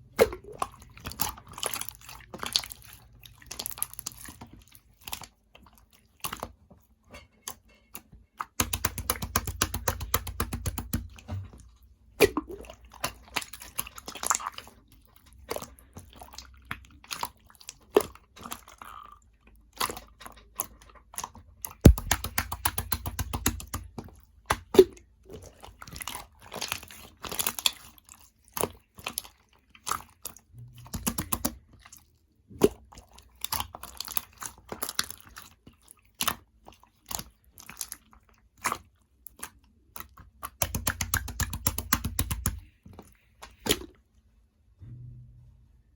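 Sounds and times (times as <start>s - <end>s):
slime squished with crackling clicks: 8.5s - 11.1s, 21.9s - 24.8s, 40.3s - 42.7s.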